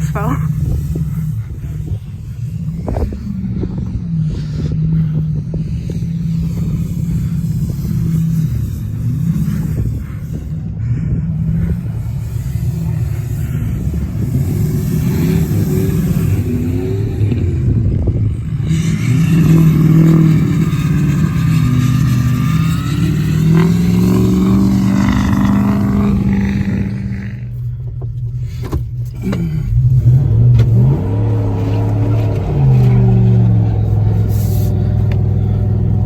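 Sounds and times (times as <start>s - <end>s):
car engines revving: 0.0s - 36.0s.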